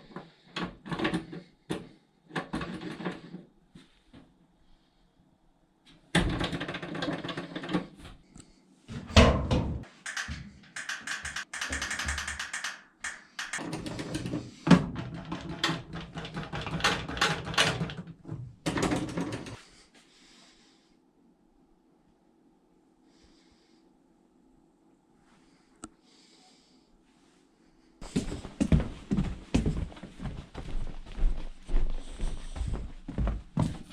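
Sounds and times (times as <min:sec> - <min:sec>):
clattering and knocking: 0:08.9 - 0:19.6.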